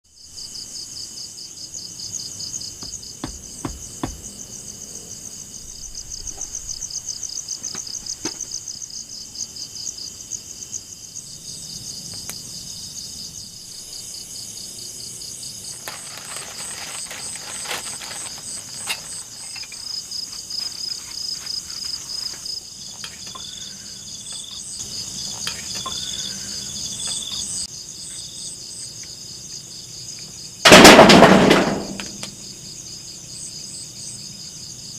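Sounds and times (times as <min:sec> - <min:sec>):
insects trilling: 0:00.1 - 0:34.9
intermittent chirping: 0:22.1 - 0:30.6.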